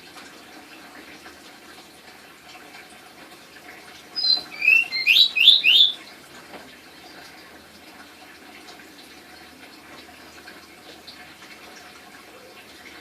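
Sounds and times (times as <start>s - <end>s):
bird whistling rising notes: 4.2s - 6.0s.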